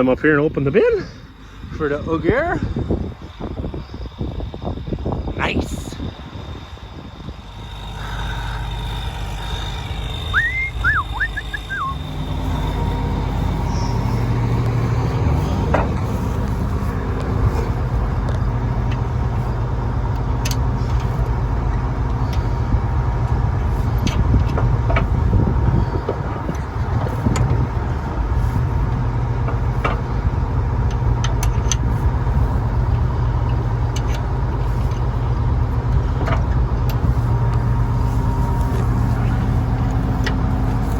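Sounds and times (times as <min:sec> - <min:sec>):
diesel machinery engine running: 0:00.0 - 0:40.9
short high chirps: 0:10.2 - 0:14.2.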